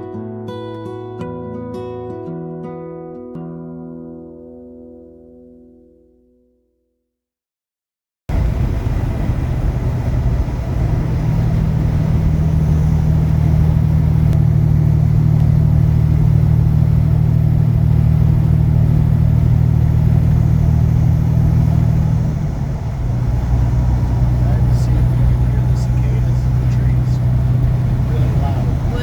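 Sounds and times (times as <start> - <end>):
truck engine and road noise: 8.3 - 29.0.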